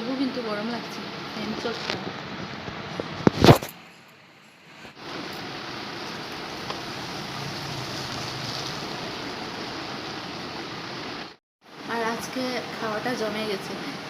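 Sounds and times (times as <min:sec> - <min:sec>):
steady rain falling: 0:04.8 - 0:14.0.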